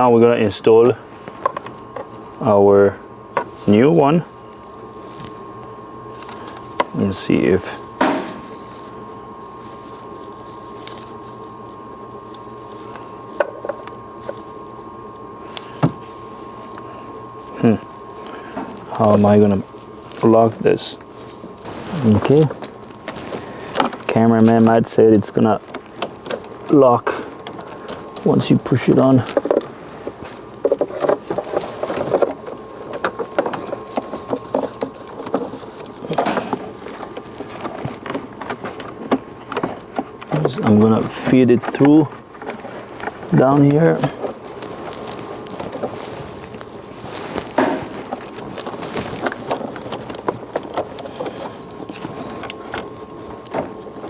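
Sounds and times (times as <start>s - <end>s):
steady background hum: 0.0s - 54.0s
plastic parts clicking and rubbing: 17.6s - 54.0s.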